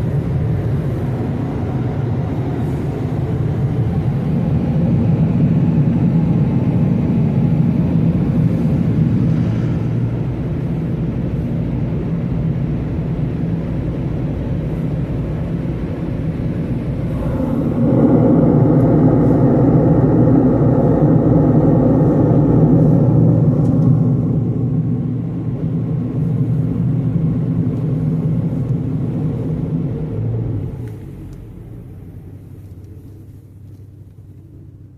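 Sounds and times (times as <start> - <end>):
car wash machinery rumbling: 0.0 - 34.9
rush of air or water: 16.2 - 30.8.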